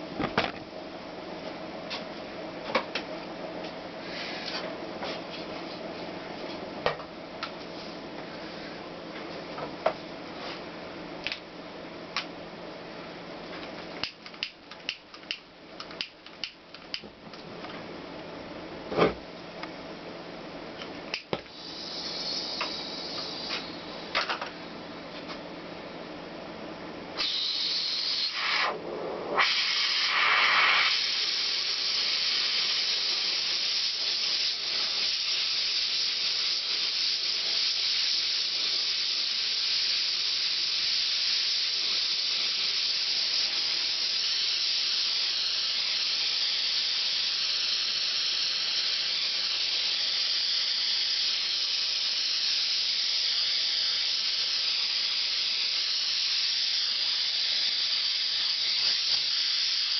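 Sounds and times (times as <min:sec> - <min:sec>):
gas torch flame hissing: 0:21.1 - 0:24.5, 0:27.2 - 0:59.9.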